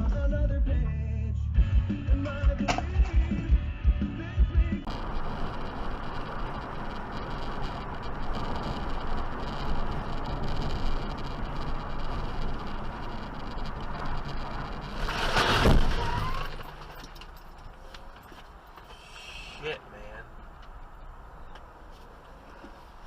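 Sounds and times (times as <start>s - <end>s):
car driving on road: 4.8s - 23.0s
loud rushing: 4.9s - 17.1s.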